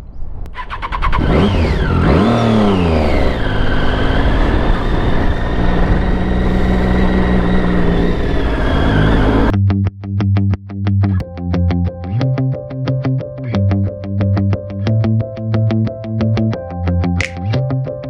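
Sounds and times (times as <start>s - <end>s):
road and wind noise: 0.0s - 9.5s
motorcycle engine accelerating: 0.5s - 9.5s.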